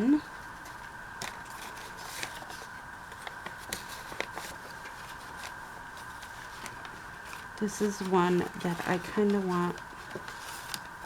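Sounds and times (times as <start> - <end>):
faint background hum: 0.0 - 11.0
paper rustling: 0.6 - 11.0.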